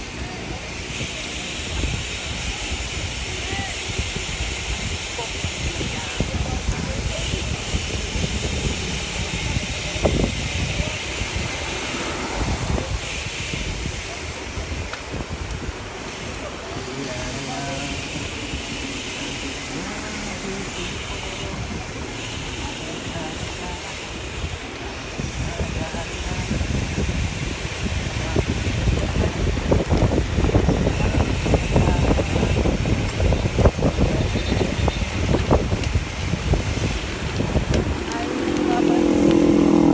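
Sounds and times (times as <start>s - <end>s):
wind buffeting microphone: 0.0s - 16.6s, 23.4s - 39.9s.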